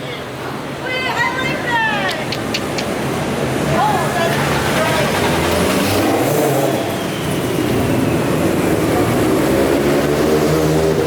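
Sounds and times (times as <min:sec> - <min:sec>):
car engine running and revving: 0:07.5 - 0:11.0.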